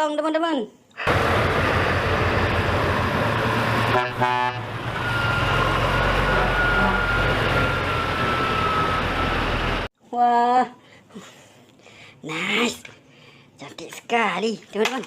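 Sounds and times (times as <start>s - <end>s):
truck engine rumble with hiss: 1.0s - 9.9s
horn toot: 3.8s - 5.4s.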